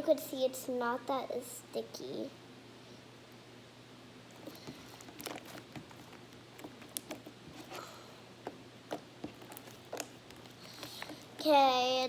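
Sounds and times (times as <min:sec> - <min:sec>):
slime squelching: 0:04.3 - 0:12.0.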